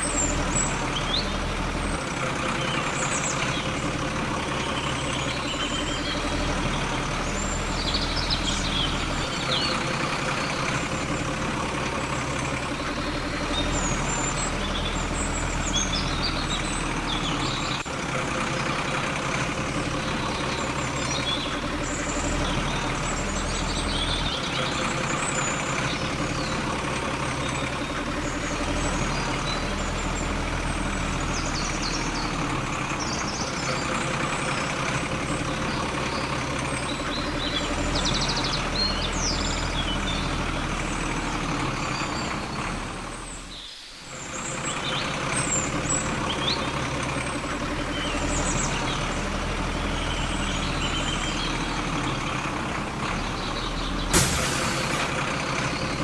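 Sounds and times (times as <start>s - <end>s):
faint bird chirps: 47.8s - 52.5s
machine running noise: 54.1s - 56.0s.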